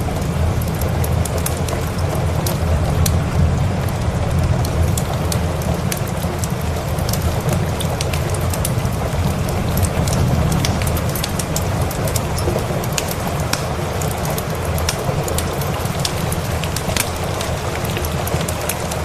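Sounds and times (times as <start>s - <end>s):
steady rain: 0.0s - 19.0s
wood fire crackling: 0.0s - 19.0s.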